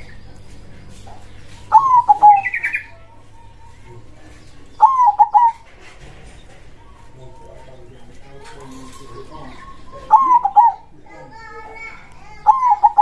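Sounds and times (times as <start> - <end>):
high bird twittering: 0.0 - 5.7, 6.4 - 13.0
dove cooing: 1.4 - 13.0.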